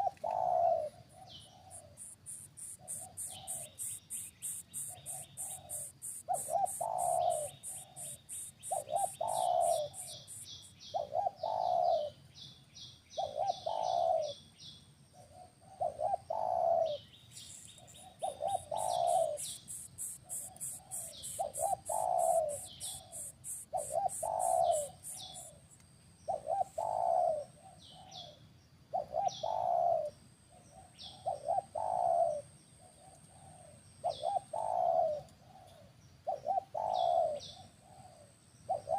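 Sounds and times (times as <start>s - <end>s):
bird cooing: 0.0s - 12.2s, 13.1s - 14.4s, 15.1s - 25.6s, 26.3s - 38.9s
fast high insect ticking: 1.7s - 10.8s, 17.3s - 25.8s
thin high chirps: 2.0s - 10.7s.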